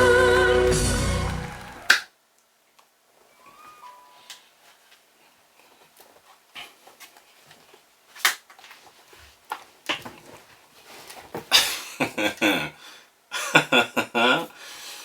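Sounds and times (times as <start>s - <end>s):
breathy wordless vocal sounds: 0.0s - 1.9s.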